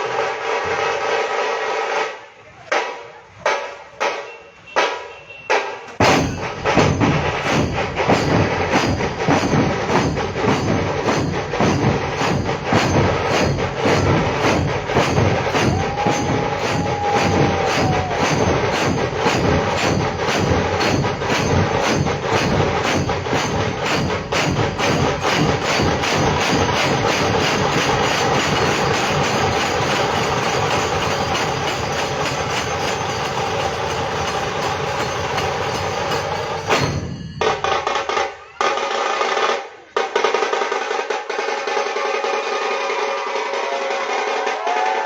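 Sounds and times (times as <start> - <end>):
fast even drumming: 5.6 - 45.0.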